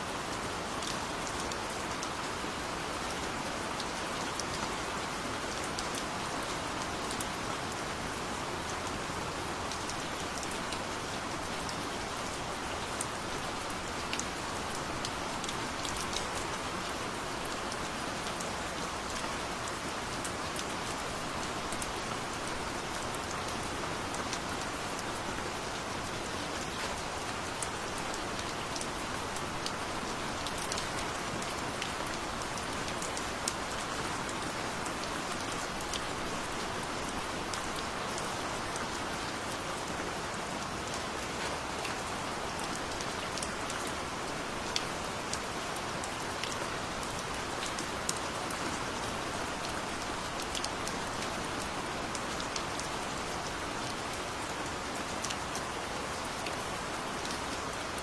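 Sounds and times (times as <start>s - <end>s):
gentle rain falling: 0.0s - 58.0s.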